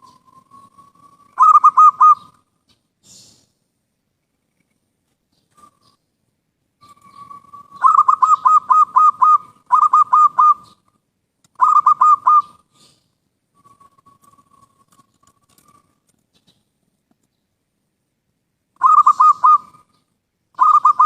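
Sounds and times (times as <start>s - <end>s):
dove cooing: 0.0s - 2.4s, 6.8s - 10.8s, 11.6s - 13.0s, 18.8s - 20.0s, 20.6s - 21.0s.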